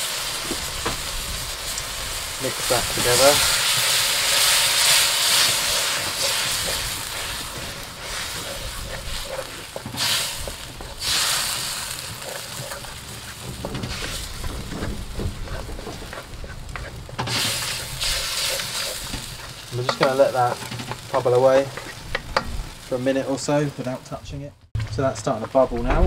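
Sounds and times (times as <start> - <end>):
sauce sizzling in a wok: 0.0 - 24.0
spoon scraping and tapping pan: 12.0 - 22.5.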